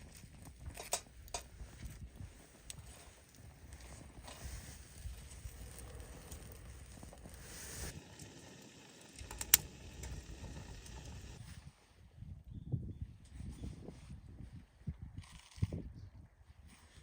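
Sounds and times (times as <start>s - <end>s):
campfire crackling: 0.0s - 11.4s.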